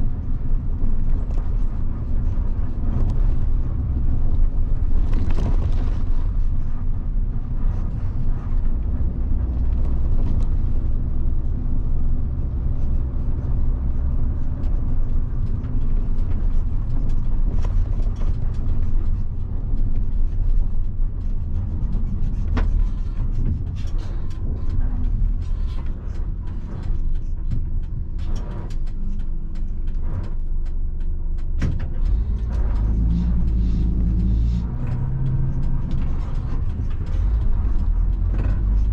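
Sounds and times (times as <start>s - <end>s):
bus diesel engine running: 0.0s - 38.9s
road rumble: 0.0s - 38.9s.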